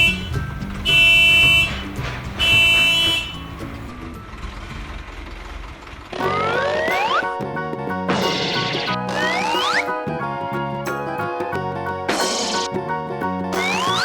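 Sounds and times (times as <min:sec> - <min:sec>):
horn honking: 0:00.0 - 0:03.9
background music: 0:00.0 - 0:05.1, 0:06.1 - 0:14.0.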